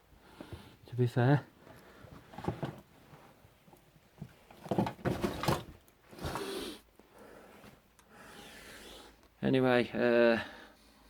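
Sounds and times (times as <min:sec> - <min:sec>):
clutter knocking and rustling: 0:01.6 - 0:06.4.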